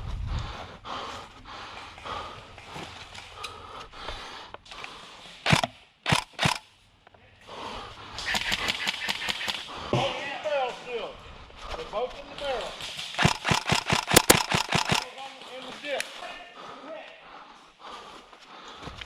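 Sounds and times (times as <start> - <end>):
sharp loud cracks: 5.4 - 6.6, 8.2 - 9.8, 12.8 - 15.3.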